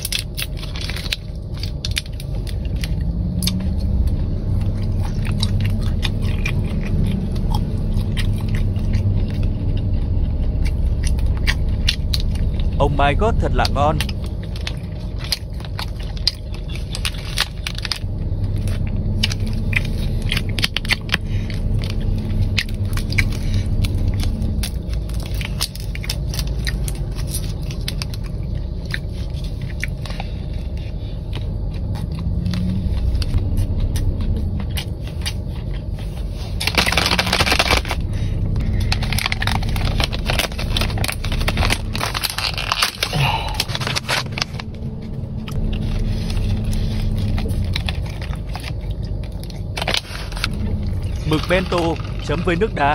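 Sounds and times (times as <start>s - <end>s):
crunchy food chewing: 0.0s - 52.9s
steady low rumble: 0.0s - 52.9s.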